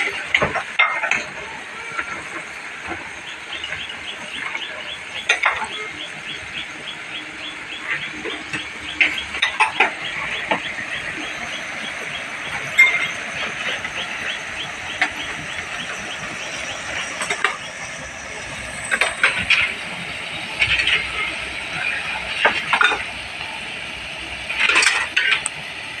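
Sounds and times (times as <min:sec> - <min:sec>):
high chirping: 0:03.0 - 0:22.3.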